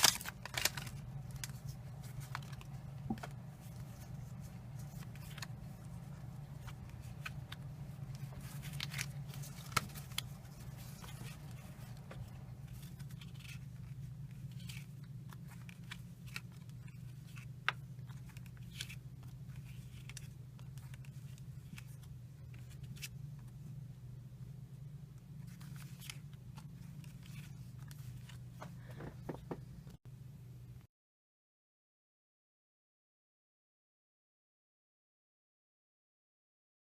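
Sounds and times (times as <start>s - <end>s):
cards sliding and flipping: 0.0s - 23.6s, 25.4s - 29.5s
steady low hum: 0.0s - 30.8s.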